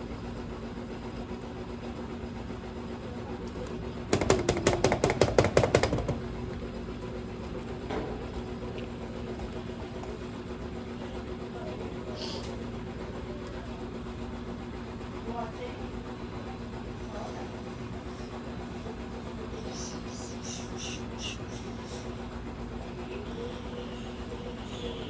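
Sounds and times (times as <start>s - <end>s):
washing machine spinning: 0.0s - 25.0s
rapid knocking rattle: 4.1s - 6.3s.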